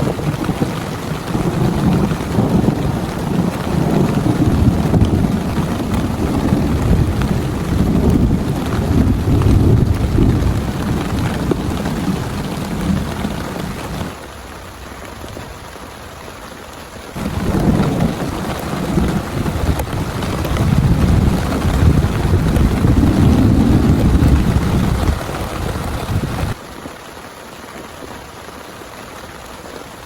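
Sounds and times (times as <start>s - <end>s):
rolling thunder: 0.0s - 14.1s, 17.2s - 26.6s
heavy rain pouring: 0.0s - 30.0s.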